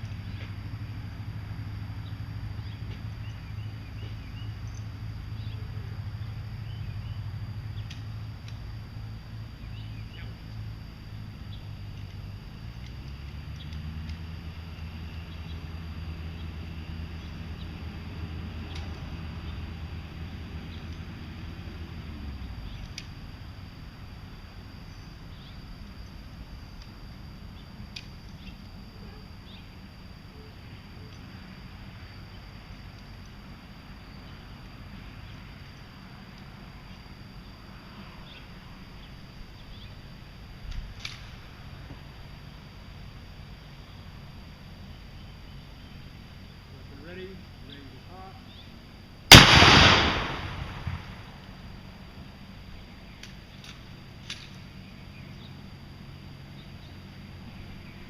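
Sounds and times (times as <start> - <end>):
steady low hum: 0.0 - 58.0
faint bird chirps: 2.0 - 7.9, 9.6 - 10.4
small birds chirping: 2.0 - 8.0, 9.5 - 10.7, 13.4 - 17.9, 24.8 - 26.2, 36.8 - 40.1, 43.6 - 48.9
faint ticks: 27.9 - 28.6
low wind rumble: 49.2 - 53.0.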